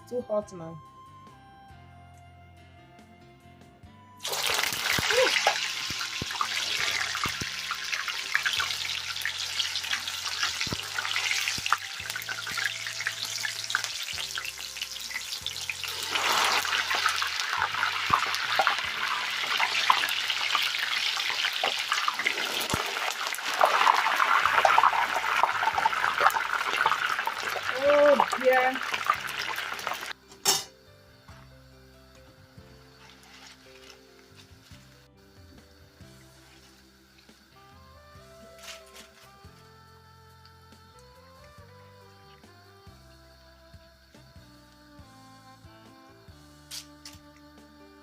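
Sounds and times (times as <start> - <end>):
plantain sizzling in hot oil: 4.2 - 30.7, 32.7 - 41.0, 42.9 - 44.1.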